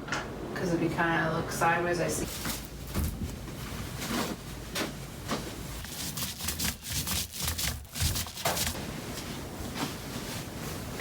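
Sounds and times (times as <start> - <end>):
paint roller rubbing on wall: 5.8 - 9.1.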